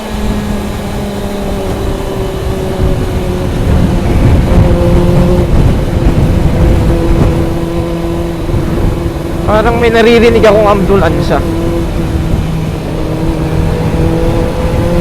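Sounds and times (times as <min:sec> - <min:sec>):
motorcycle engine running: 0:00.0 - 0:15.0
wind on microphone: 0:00.0 - 0:15.0.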